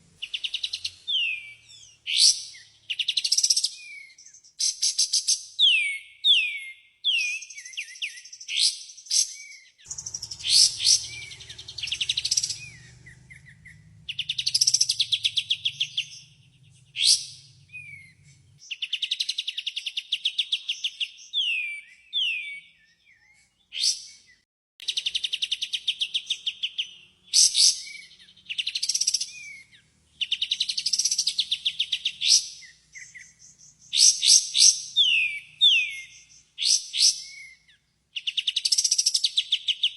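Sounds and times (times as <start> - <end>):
bulbul singing trills and whistles: 0.2 - 39.9
faint low hum: 9.9 - 18.6.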